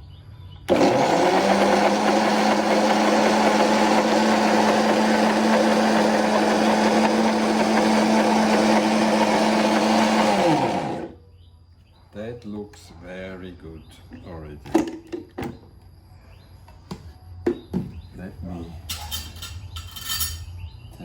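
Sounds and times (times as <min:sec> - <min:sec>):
blender motor whining: 0:00.7 - 0:11.2.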